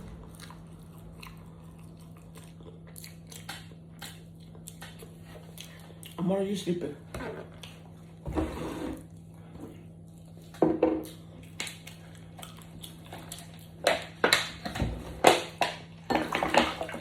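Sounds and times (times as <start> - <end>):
chewing: 0.0 - 6.2, 10.0 - 14.2.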